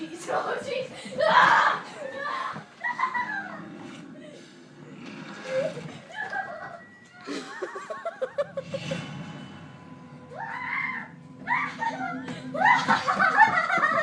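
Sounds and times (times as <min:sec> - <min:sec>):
child laughing and squealing: 0:01.2 - 0:03.7, 0:05.5 - 0:08.7, 0:10.4 - 0:14.0.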